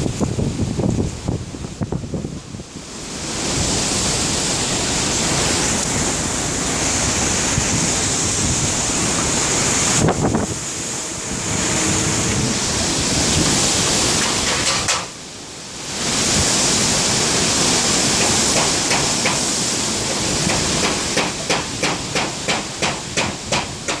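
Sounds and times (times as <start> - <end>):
storm wind buffeting microphone: 0.0 - 24.0
rapid sharp knocks: 18.2 - 19.5, 20.4 - 24.0.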